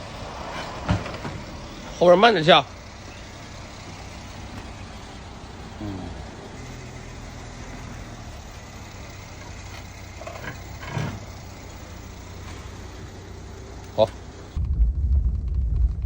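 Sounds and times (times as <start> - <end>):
car running with low hum: 0.0 - 16.0
loud thump: 0.5 - 1.6, 14.6 - 16.0.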